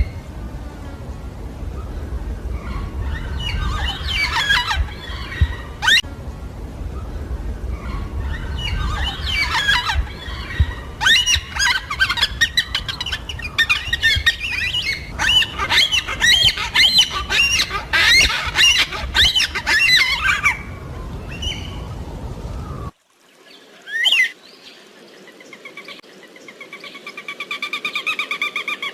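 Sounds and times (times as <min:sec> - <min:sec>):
low rumbling background: 0:00.0 - 0:23.0
cockatoos squawking: 0:02.4 - 0:06.0, 0:07.6 - 0:22.9.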